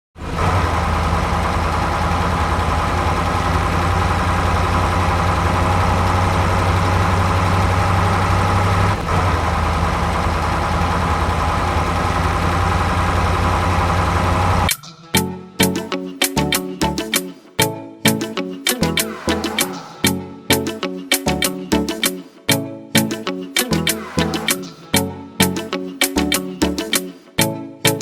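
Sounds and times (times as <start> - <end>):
tractor engine idling: 0.2 - 14.7.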